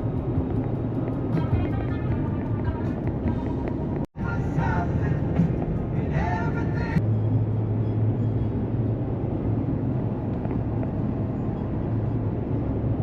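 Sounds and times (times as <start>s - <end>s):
music: 0.0s - 7.0s
road or wind noise: 0.0s - 13.0s
vehicle engine droning: 0.0s - 13.0s.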